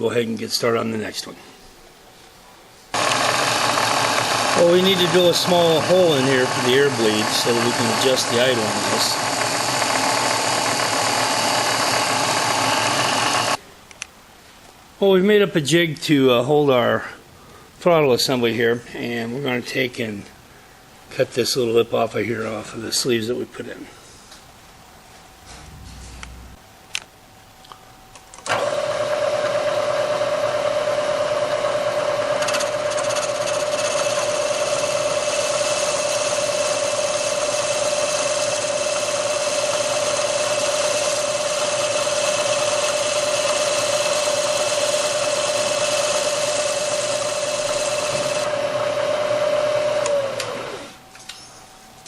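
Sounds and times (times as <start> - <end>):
cutter hissing through metal: 3.0 - 13.6, 33.5 - 48.5
machine tool motor whining: 3.0 - 13.6, 31.9 - 51.0.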